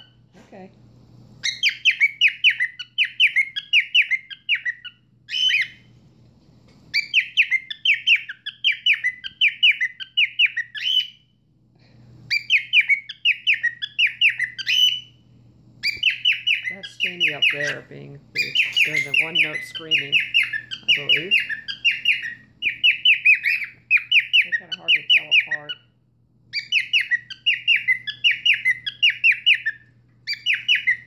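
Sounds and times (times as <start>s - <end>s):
cockatiel screaming: 1.4s - 5.8s, 18.4s - 25.8s, 26.5s - 31.0s.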